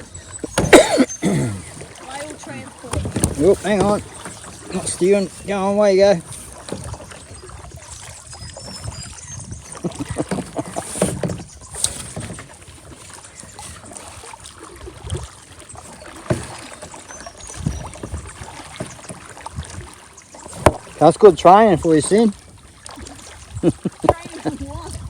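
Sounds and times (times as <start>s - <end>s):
water splashing and lapping: 0.0s - 25.0s
knocks against boat hull: 0.4s - 5.0s, 16.2s - 16.8s, 20.5s - 21.0s.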